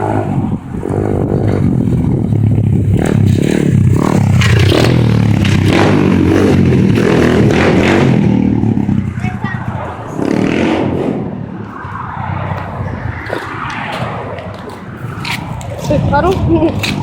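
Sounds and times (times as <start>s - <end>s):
rough crackly noise: 0.7s - 17.0s
small motorcycle engine revving: 0.8s - 9.4s.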